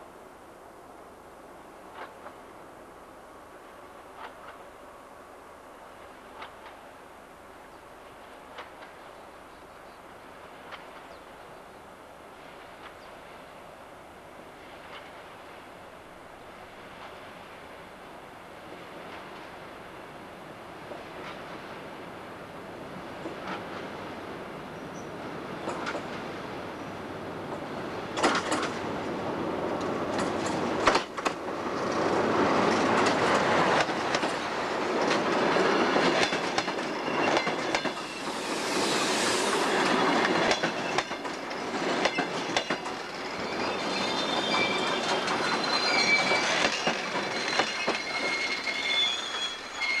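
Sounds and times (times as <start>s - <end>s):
train wheels clacking over rail joints: 25.6s - 26.2s, 28.1s - 28.9s, 29.8s - 38.8s, 39.6s - 49.4s
high wheel squeal: 36.7s - 50.0s.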